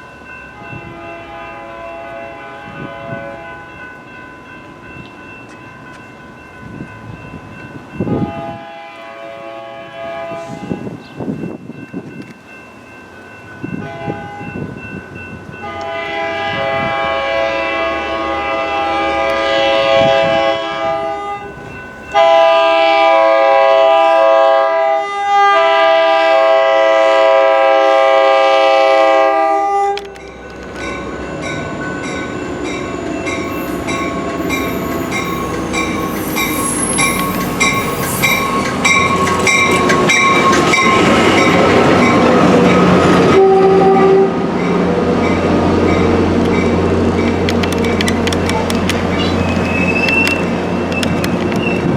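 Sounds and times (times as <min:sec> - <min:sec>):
train horn chord: 0:00.5 - 0:03.7, 0:08.1 - 0:10.8, 0:15.6 - 0:30.0, 0:43.2 - 0:44.5
train rushing past: 0:13.4 - 0:51.9
wheels clicking over rail joints: 0:32.0 - 0:42.8, 0:45.8 - 0:51.9
high metallic squeals: 0:32.4 - 0:42.3, 0:47.2 - 0:51.9.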